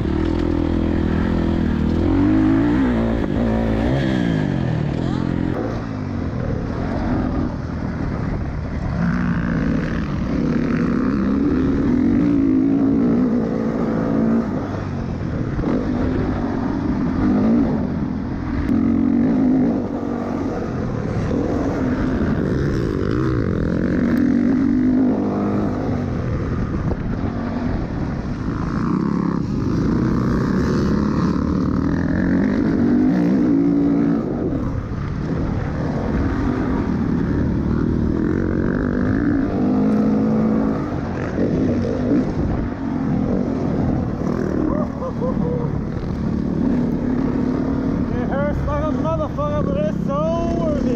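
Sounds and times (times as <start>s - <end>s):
dirt bike engine revving: 0.0s - 5.9s, 6.6s - 50.9s.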